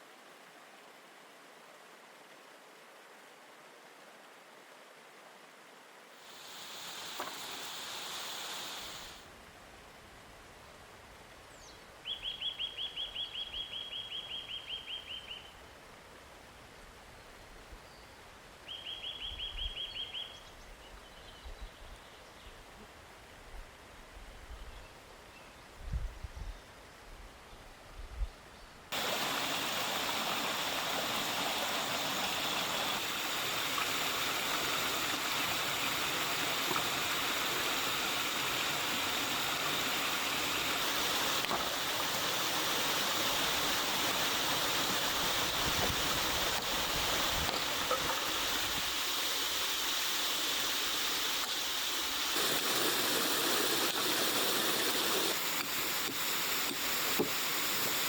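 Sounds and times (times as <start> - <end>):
waterfall rushing: 29.0 - 58.0.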